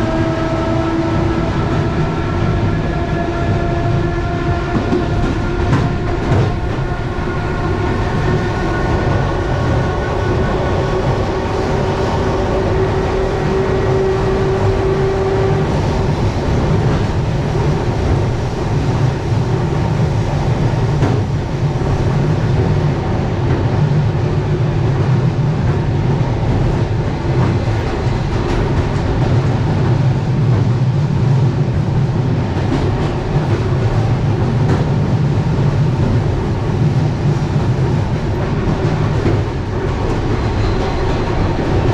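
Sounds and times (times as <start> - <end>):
train wheels rumbling on rails: 0.0 - 41.9
rail-joint clicks: 32.5 - 41.9.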